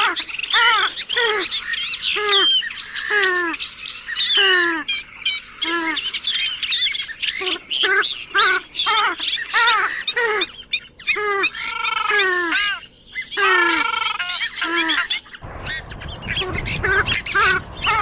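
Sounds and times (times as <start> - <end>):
bird nasal calls: 0.0 - 18.0
bird rasping calls: 5.6 - 18.0.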